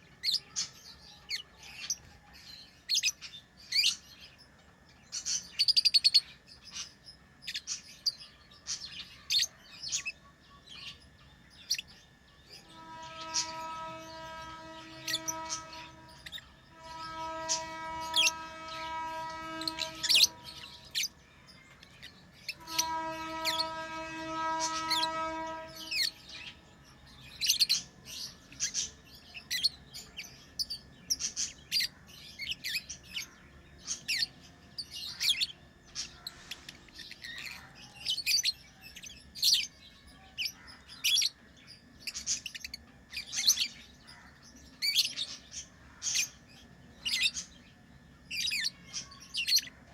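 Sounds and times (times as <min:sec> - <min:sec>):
steady droning hum: 0:10.2 - 0:37.0.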